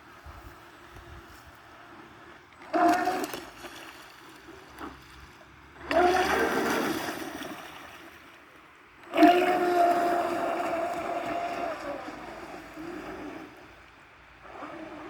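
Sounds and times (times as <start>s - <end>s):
water splashing: 2.5s - 15.0s
electric motors whining: 9.0s - 13.8s, 14.4s - 15.0s.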